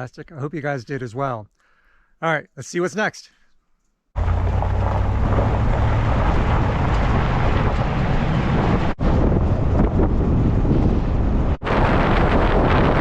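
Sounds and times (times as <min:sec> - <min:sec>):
wind buffeting microphone: 0:04.2 - 0:13.0.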